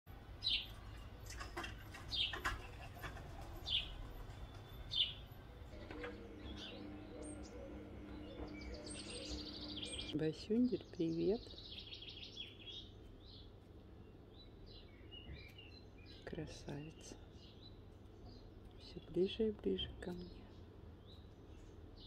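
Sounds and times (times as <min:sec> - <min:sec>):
steady low hum: 0:00.1 - 0:11.8
small bird chirping: 0:00.4 - 0:22.0
faint higher twittering: 0:03.6 - 0:10.2.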